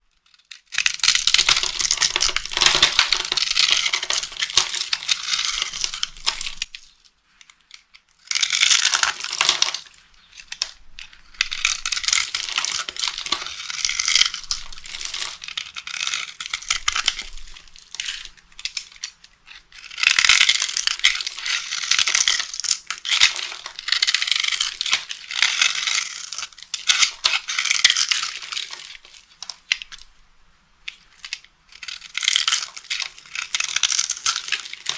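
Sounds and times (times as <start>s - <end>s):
dry soap crushing and crackling: 0.1s - 30.2s, 30.8s - 34.9s.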